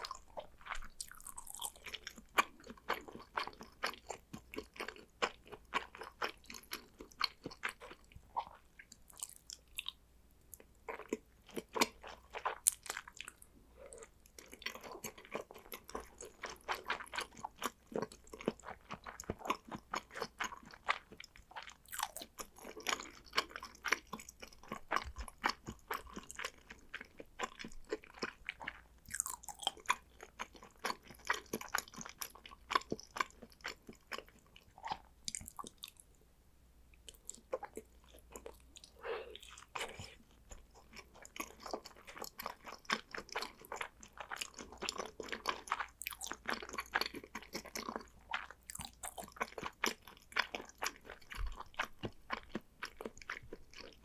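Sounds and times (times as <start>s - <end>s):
wet chewing mouth sounds: 10.6s - 36.0s, 37.0s - 54.0s.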